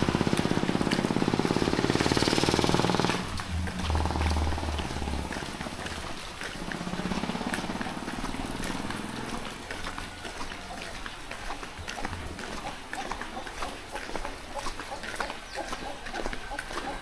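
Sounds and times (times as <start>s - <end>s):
passing vehicle hum: 0.0s - 10.3s
raindrops ticking: 0.0s - 17.0s.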